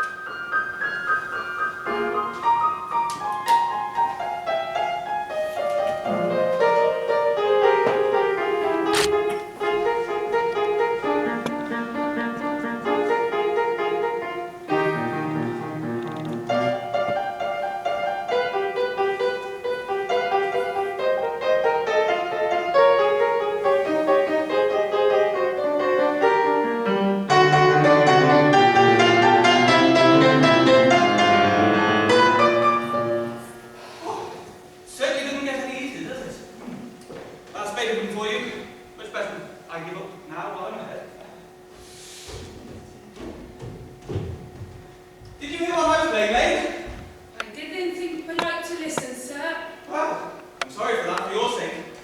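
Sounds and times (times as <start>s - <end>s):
piano piece: 0.0s - 34.8s.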